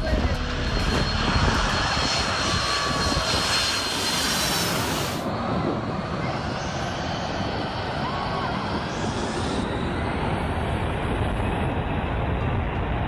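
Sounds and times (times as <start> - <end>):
aircraft engine rush and whine: 0.0 - 13.0.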